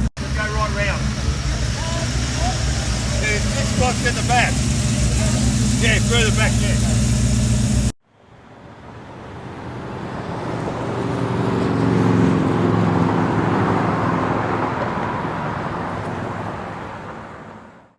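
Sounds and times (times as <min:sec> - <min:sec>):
car driving past: 0:00.0 - 0:08.0
car engine idling: 0:00.0 - 0:08.0.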